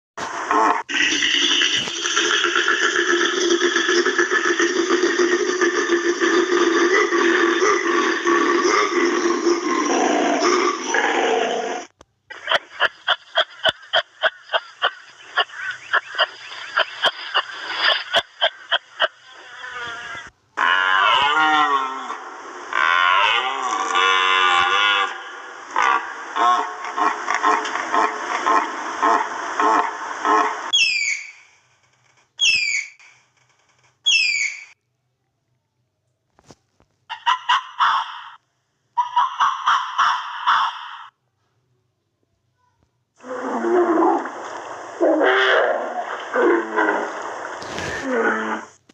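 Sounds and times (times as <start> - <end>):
harsh buzzy animal calls: 0.4 - 12.6, 13.3 - 31.5
whistled animal calls: 30.7 - 31.5, 32.4 - 33.0, 34.1 - 34.8.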